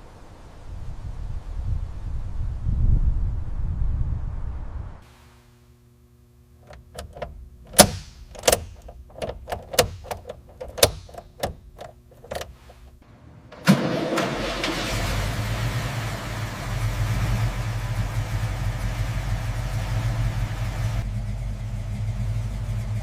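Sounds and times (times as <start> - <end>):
sharp clicks and knocks: 6.6 - 13.8
car engine starting and running: 6.6 - 23.0.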